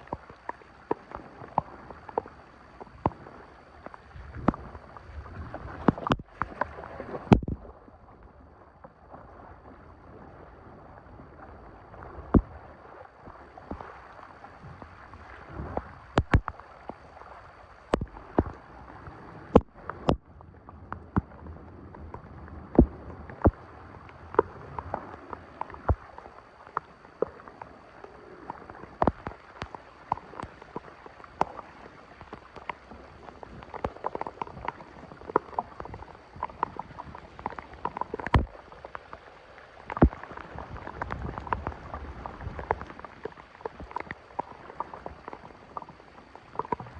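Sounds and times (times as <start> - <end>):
shallow water splashing: 0.0 - 46.9.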